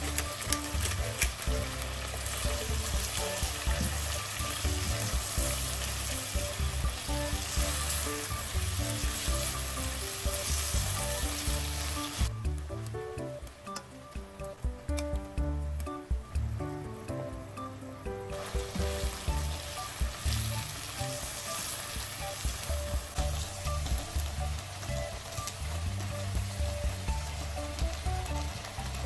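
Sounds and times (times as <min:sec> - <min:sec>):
utensil stirring in a wok: 0:00.0 - 0:12.3
food sizzling in a wok: 0:00.0 - 0:12.6, 0:18.2 - 0:29.0.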